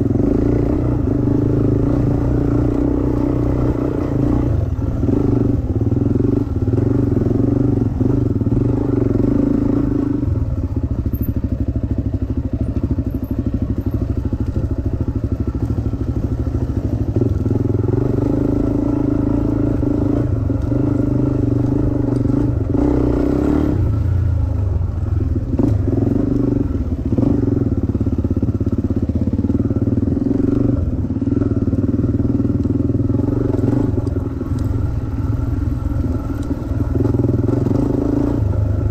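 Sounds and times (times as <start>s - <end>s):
dirt bike engine revving: 15.7s - 24.2s, 25.1s - 28.0s, 29.3s - 38.9s.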